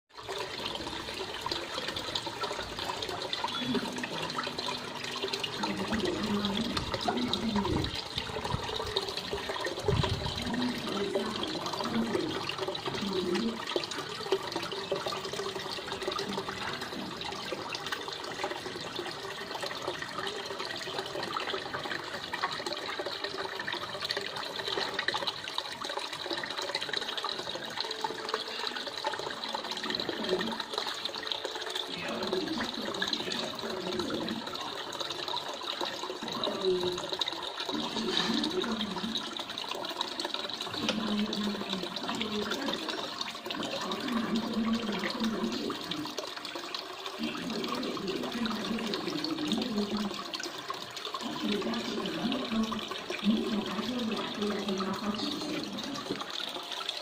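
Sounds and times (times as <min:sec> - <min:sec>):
water running and trickling: 0:00.1 - 0:57.0.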